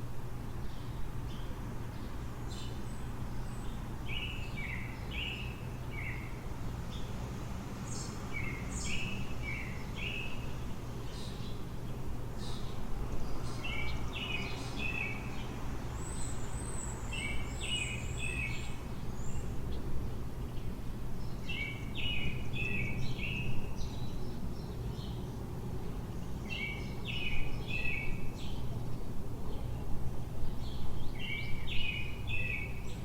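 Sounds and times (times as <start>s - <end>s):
low city rumble: 0.0s - 33.0s
songbird singing: 0.0s - 33.0s
high thin birdsong: 7.8s - 33.0s.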